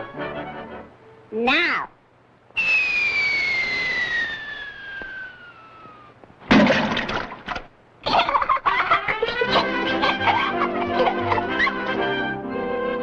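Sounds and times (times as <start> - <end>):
cartoon falling whistle: 2.6 - 6.2.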